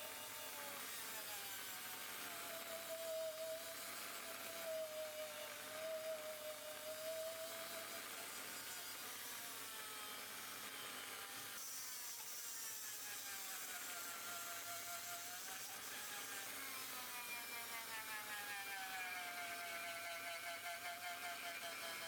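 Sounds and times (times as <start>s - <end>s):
electric rotary tool whirring: 0.0s - 22.0s.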